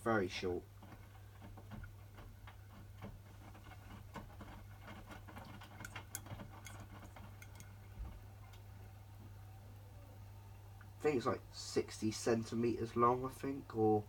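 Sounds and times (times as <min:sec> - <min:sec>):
clicks and patter from drum: 0:00.8 - 0:07.7.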